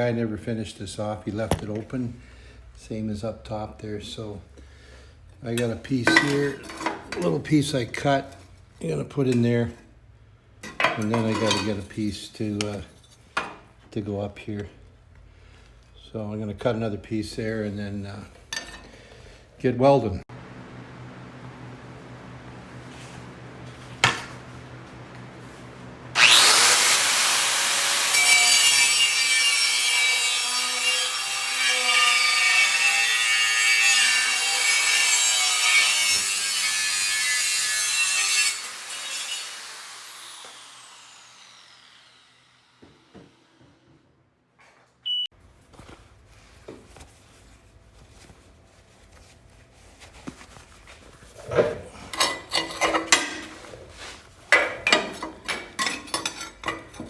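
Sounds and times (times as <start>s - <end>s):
cut-off wheel cutting steel: 20.3s - 43.6s.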